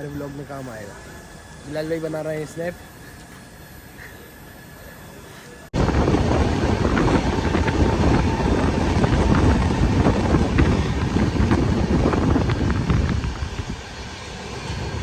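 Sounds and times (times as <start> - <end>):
passenger train running: 0.0 - 15.0
wind buffeting microphone: 5.7 - 15.0.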